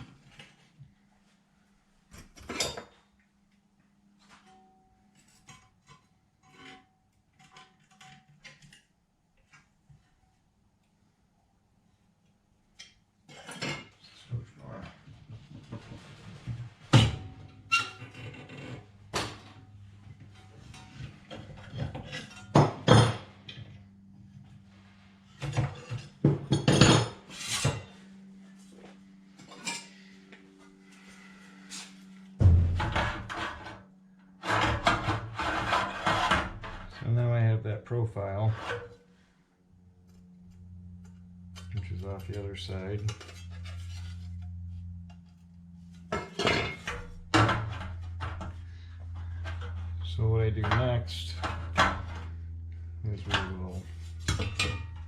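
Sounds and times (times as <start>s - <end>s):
steady low hum: 13.6s - 55.0s
metallic clanks and rattles: 32.4s - 33.8s, 41.1s - 52.5s, 53.2s - 55.0s
sheet metal clanking: 32.4s - 33.8s.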